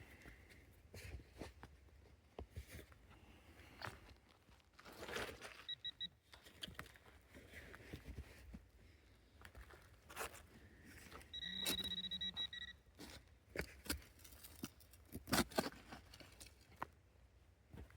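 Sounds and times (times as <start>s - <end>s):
high electronic beeps: 5.7s - 6.1s, 11.4s - 12.8s.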